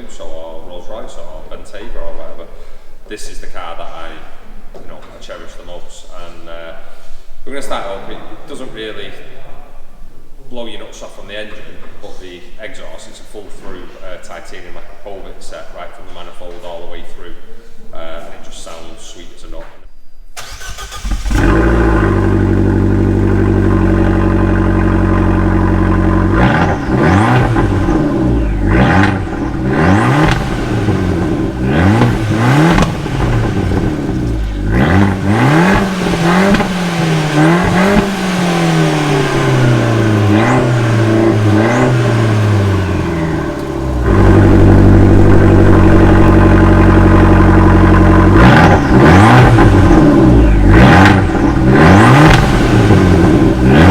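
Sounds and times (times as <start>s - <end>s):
car engine idling and revving: 20.4s - 53.9s.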